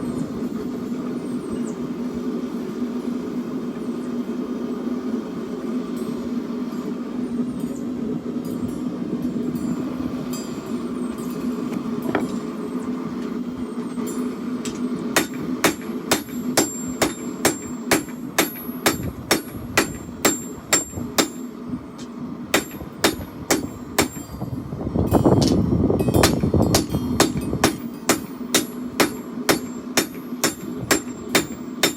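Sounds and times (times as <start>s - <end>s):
continuous low roar: 0.0s - 31.9s
hammer striking steel on anvil: 14.1s - 24.4s, 25.1s - 31.9s.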